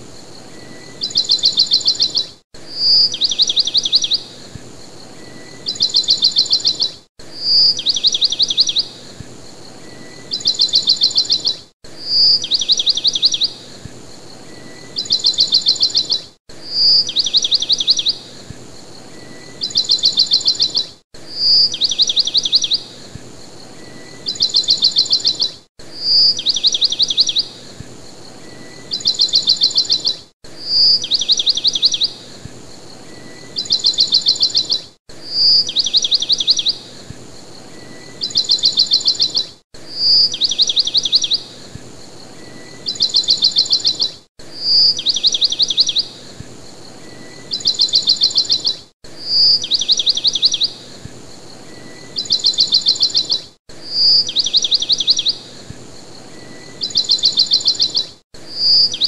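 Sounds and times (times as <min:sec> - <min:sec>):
songbird trilling: 0:00.5 - 0:04.4, 0:05.0 - 0:09.0, 0:09.7 - 0:13.6, 0:14.4 - 0:18.2, 0:19.1 - 0:23.0, 0:23.7 - 0:27.6, 0:28.4 - 0:32.3, 0:33.0 - 0:36.8, 0:37.6 - 0:41.6, 0:42.3 - 0:46.3, 0:47.0 - 0:50.9, 0:51.6 - 0:55.4, 0:56.3 - 0:59.0.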